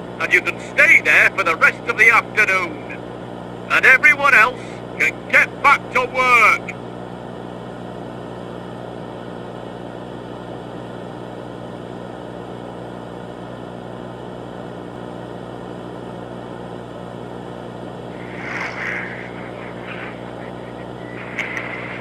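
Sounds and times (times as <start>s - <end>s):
low hum: 17.8s - 22.0s.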